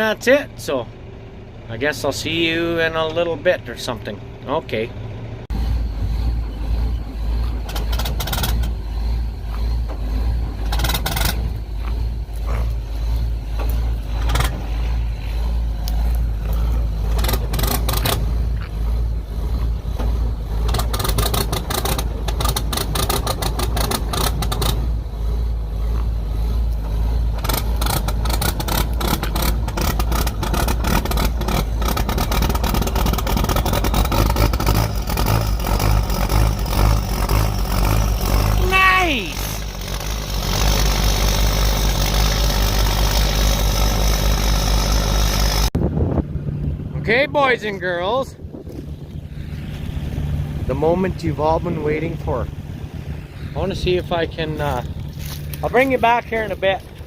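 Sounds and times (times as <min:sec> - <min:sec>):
vehicle engine rumbling: 0:00.0 - 0:57.0
rattles and knocks: 0:05.6 - 0:25.0, 0:26.8 - 0:38.5.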